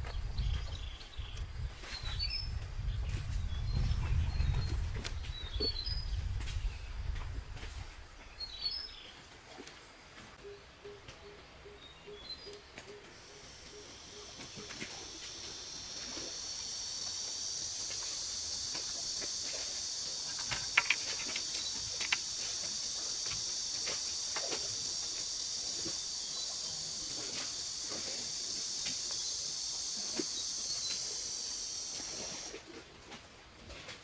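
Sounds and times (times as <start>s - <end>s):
high-pitched insect chorus: 13.1s - 32.6s
sharp clicks and taps: 20.2s - 24.7s.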